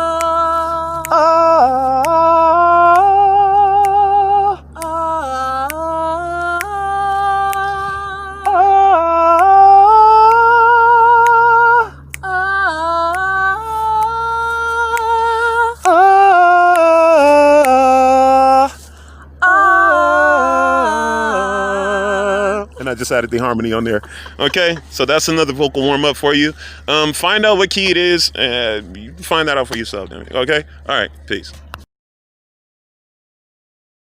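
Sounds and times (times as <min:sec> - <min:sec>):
people singing vocal scales: 0:00.0 - 0:27.1
low electrical hum: 0:00.0 - 0:31.9.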